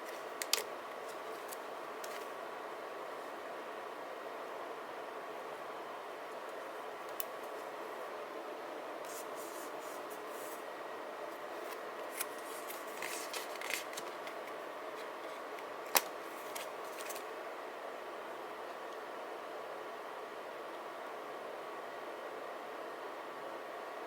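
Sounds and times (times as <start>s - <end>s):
paper rustling: 0.0s - 2.3s, 11.5s - 17.3s
scissors snipping paper: 0.1s - 2.2s, 12.1s - 17.2s.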